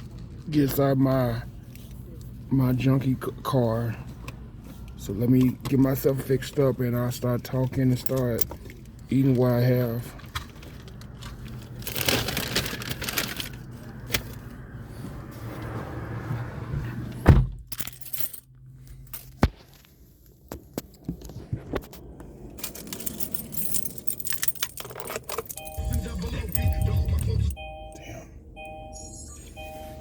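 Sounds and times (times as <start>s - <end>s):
rattling and rustling in car: 3.6s - 27.6s
heavy thump: 17.2s - 17.6s.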